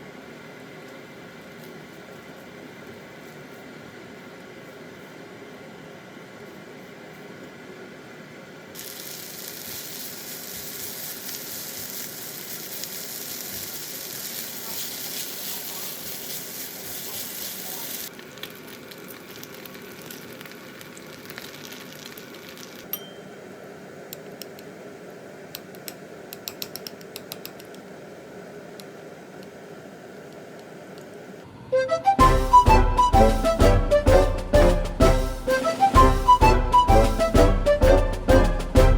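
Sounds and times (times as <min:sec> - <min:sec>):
food sizzling in a pan: 0:08.8 - 0:18.1.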